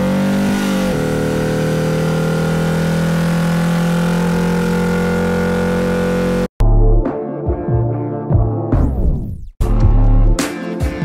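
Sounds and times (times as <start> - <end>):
car engine at steady revs: 0.0 - 6.5.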